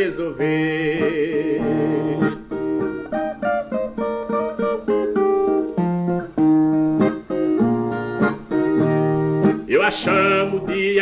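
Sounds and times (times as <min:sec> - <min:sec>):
person singing: 0:00.0 - 0:02.5, 0:09.7 - 0:11.0
folk guitar plucked notes and chords: 0:00.0 - 0:11.0.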